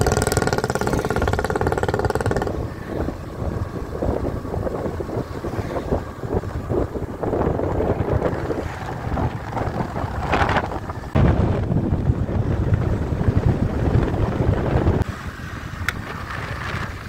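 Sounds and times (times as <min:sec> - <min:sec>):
moving vehicle rumble: 0:00.0 - 0:17.0
wind buffeting microphone: 0:00.0 - 0:17.0.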